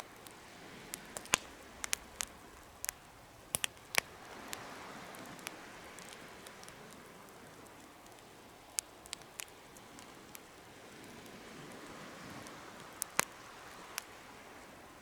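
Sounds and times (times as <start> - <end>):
wood fire popping: 0.0 - 14.7
soft hiss of flames: 0.0 - 15.0.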